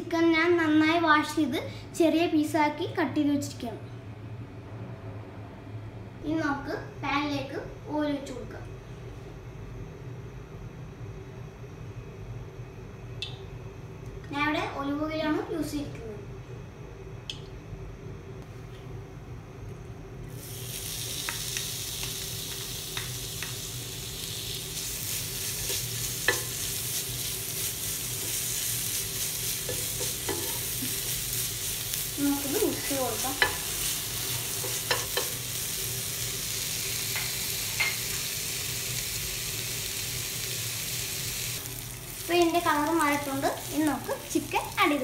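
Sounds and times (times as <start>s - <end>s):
ginger and garlic sizzling in oil: 20.3s - 45.0s.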